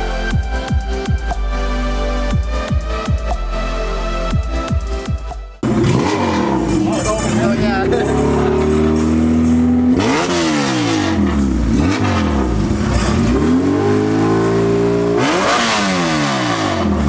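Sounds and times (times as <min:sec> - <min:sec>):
car engine revving: 0:05.6 - 0:17.0.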